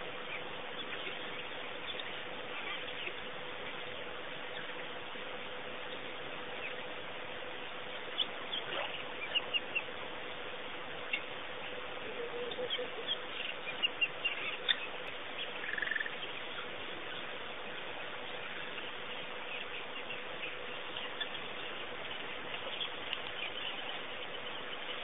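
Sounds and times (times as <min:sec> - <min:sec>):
low bird call: 0:00.0 - 0:17.5
faint hum: 0:00.0 - 0:25.0
small birds chirping: 0:00.0 - 0:25.0
steady hiss: 0:00.0 - 0:25.0.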